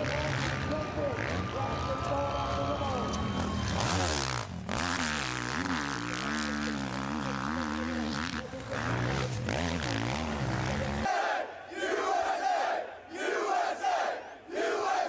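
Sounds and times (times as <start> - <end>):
motocross bike engines revving: 0.0 - 11.1.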